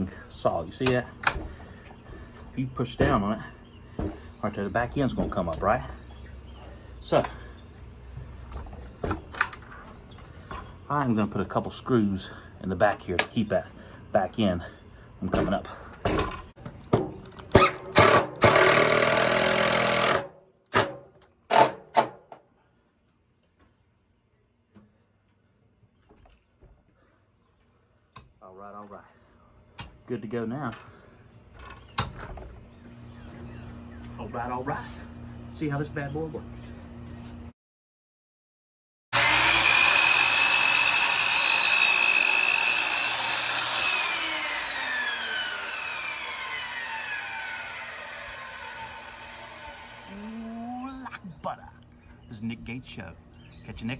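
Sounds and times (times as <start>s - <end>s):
power drill driving screws: 17.5s - 22.1s, 39.2s - 50.2s
miter saw whining cutting wood: 17.6s - 20.3s, 39.2s - 50.6s.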